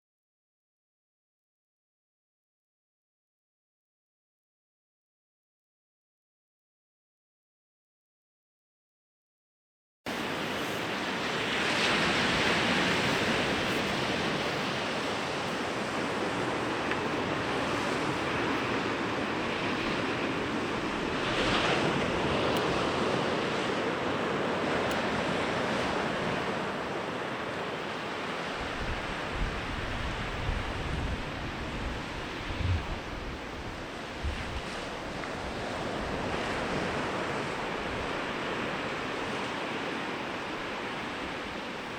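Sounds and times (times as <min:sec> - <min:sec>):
sea waves breaking on beach: 0:10.1 - 0:41.9
wind rumble on microphone: 0:10.1 - 0:41.9.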